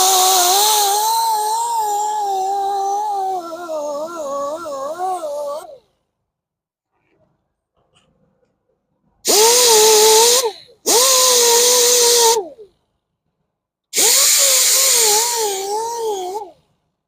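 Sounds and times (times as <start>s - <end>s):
grinder sanding metal rim: 0.0s - 5.6s.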